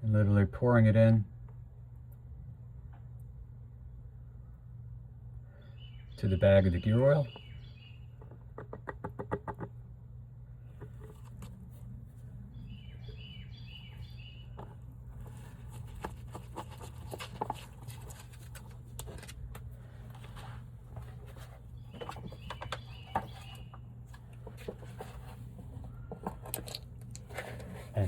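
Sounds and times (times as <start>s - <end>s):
steady low hum: 9.7s - 28.0s.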